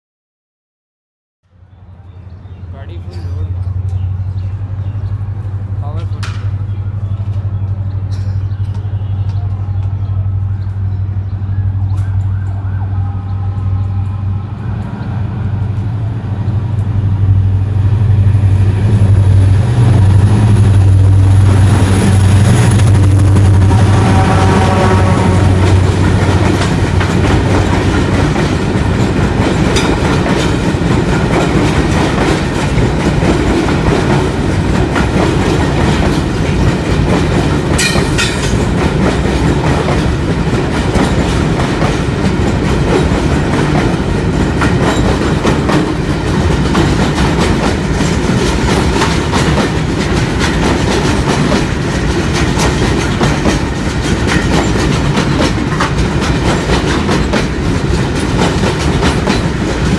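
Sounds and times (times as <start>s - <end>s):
train wagons rumbling past: 1.5s - 59.9s
wheels clacking over rail joints: 20.6s - 59.9s.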